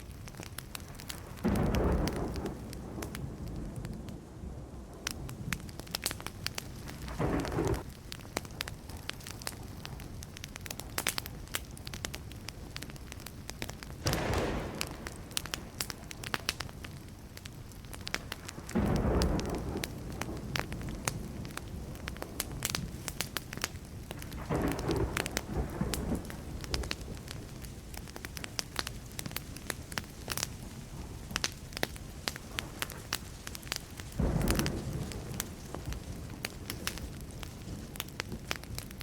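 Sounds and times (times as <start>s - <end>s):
campfire crackling and popping: 0.0s - 39.0s
distant thunder rumbling: 1.2s - 7.9s, 14.0s - 27.6s, 34.1s - 38.9s.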